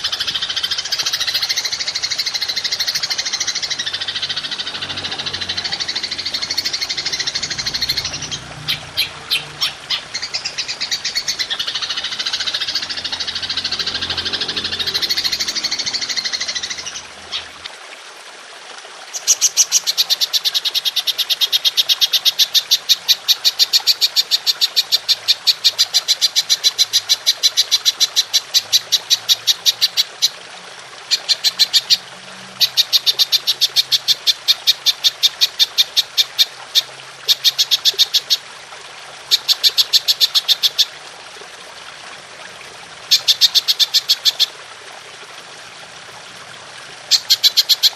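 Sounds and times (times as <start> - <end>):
grasshopper clicking call: 0.0 - 17.5, 31.1 - 32.0, 32.6 - 38.4, 39.3 - 40.9, 43.1 - 44.5, 47.1 - 47.9
dense high chattering call: 0.0 - 17.6
trickling water hiss: 0.0 - 47.9.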